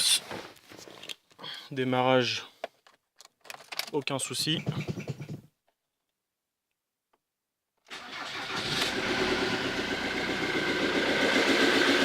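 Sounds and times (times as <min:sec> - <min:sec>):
diesel engine running: 0:08.1 - 0:12.0.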